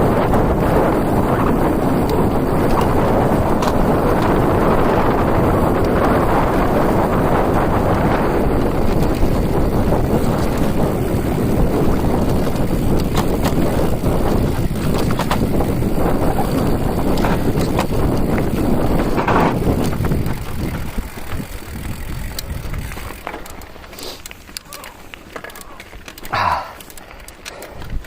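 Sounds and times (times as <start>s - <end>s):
wind buffeting microphone: 0.0s - 23.6s, 27.6s - 28.0s.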